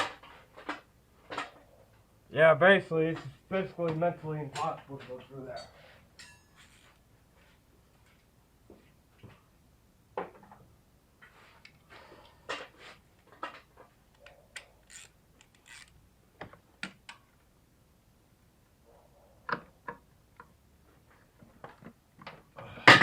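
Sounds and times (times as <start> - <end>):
hand tools on metal parts: 2.9 - 7.1, 11.2 - 17.4
metal clanks: 4.5 - 6.9.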